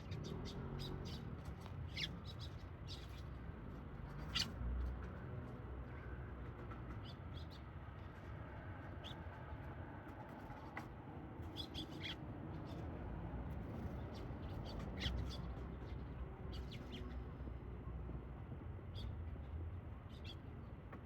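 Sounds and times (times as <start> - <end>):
sparrows chirping: 1.9 - 3.2, 11.5 - 12.8, 13.8 - 17.2.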